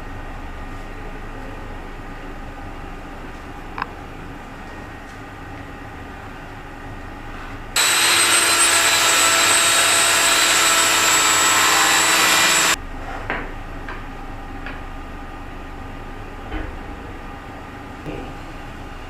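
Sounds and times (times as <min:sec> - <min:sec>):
power saw cutting plywood: 0:07.8 - 0:12.8.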